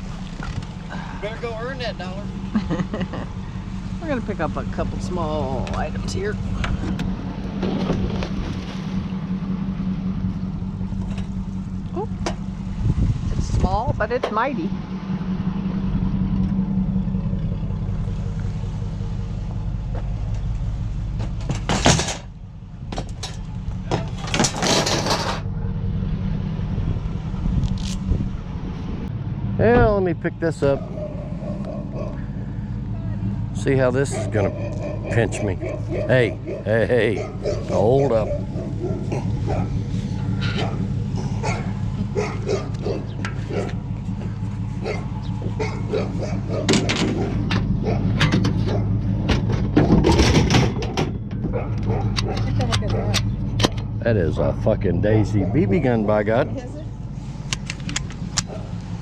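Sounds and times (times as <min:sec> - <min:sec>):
steady low hum: 0:00.0 - 0:59.0
vehicle engine idling: 0:00.0 - 0:59.0
rattling and clattering: 0:02.2 - 0:12.6, 0:16.2 - 0:25.7, 0:30.8 - 0:54.0
dog yipping and barking: 0:30.8 - 0:32.2, 0:34.1 - 0:39.8, 0:40.5 - 0:43.8, 0:44.8 - 0:49.0, 0:51.5 - 0:53.2.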